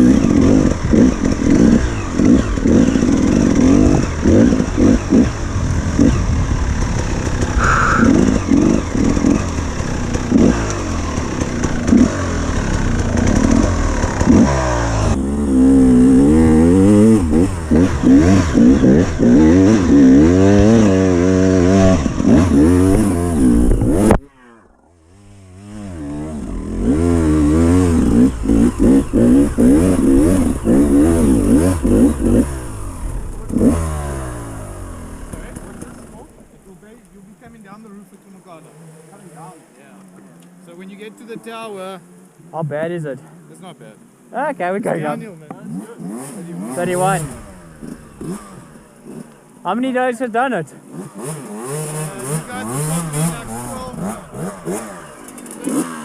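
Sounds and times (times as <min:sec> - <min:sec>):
engine clatter: 0:00.0 - 0:24.2, 0:25.2 - 0:38.7, 0:50.9 - 0:56.0
dirt bike engine revving: 0:00.0 - 0:43.8, 0:44.6 - 0:56.0.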